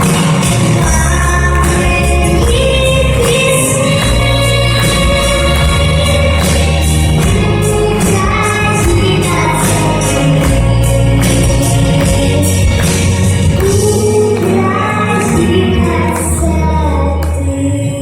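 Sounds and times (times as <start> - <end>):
backing music with bass and beat: 0.0 - 18.0
girl singing: 0.8 - 6.8, 7.4 - 10.9, 13.6 - 18.0.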